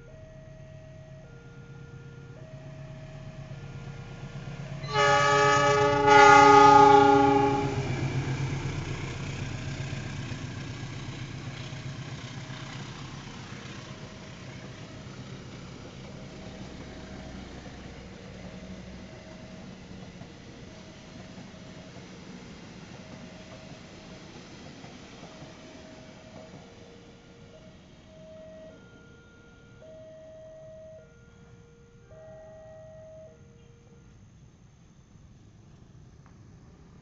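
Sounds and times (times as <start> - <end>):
train rumbling past: 0.0 - 37.0
train horn blasts: 4.8 - 8.3
level crossing alarm chime: 27.5 - 34.0.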